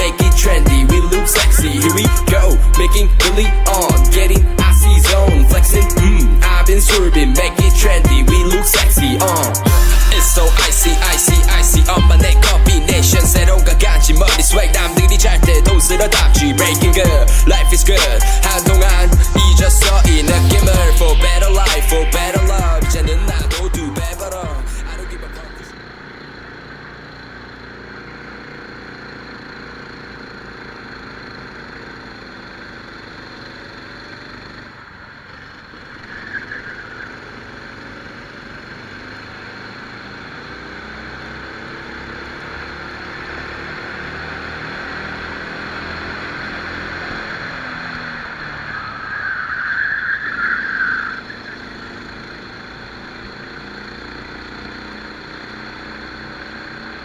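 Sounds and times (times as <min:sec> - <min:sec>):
kart engine revving: 0:00.0 - 0:57.0
loud hissing: 0:08.6 - 0:25.6.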